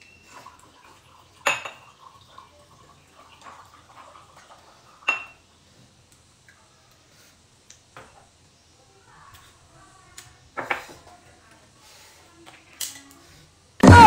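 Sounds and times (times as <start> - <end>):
glass bottle clinking on glass: 1.4 - 1.9.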